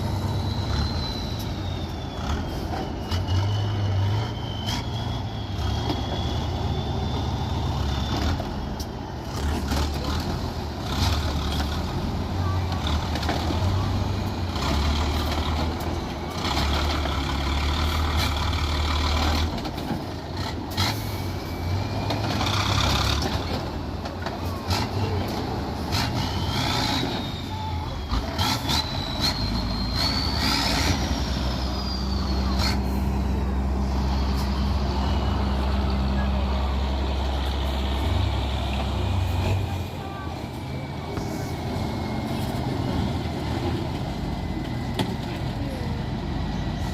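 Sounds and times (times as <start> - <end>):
whistling tone gliding: 0.0 - 9.2, 24.4 - 37.3
truck engine running: 0.0 - 46.9.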